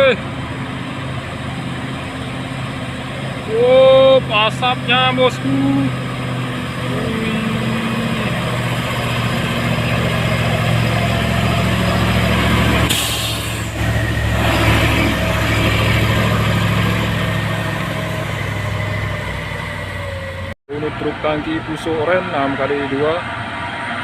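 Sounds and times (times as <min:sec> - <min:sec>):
diesel truck engine under load: 0:00.0 - 0:24.0
air hiss: 0:12.9 - 0:13.8.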